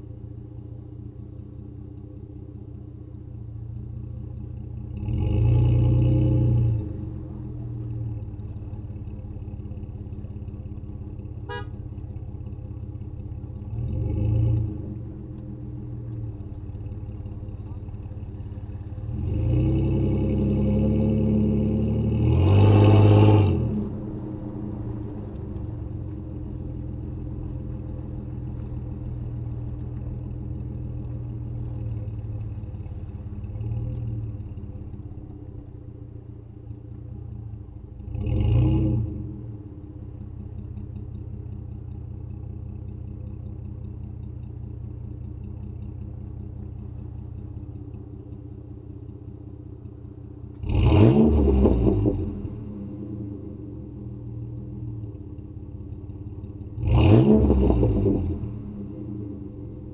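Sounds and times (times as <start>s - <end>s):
car engine running and revving: 0.0s - 59.9s.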